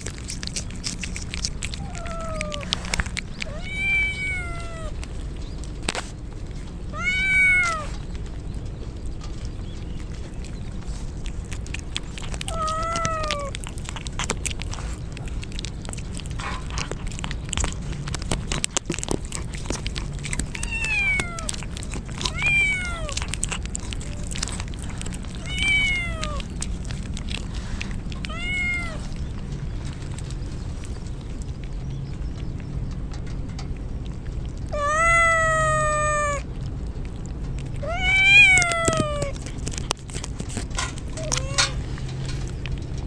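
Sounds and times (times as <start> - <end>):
cat meowing: 1.7 - 2.8, 3.4 - 5.0, 6.9 - 8.0, 12.4 - 13.7, 20.4 - 26.6, 28.3 - 29.1, 34.7 - 36.5, 37.8 - 39.6, 41.1 - 41.9.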